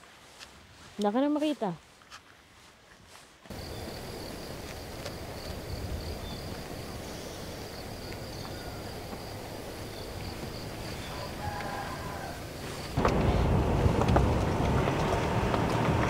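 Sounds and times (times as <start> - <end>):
insect pulsing trill: 3.5 - 13.0
wind rumble on microphone: 3.6 - 16.0.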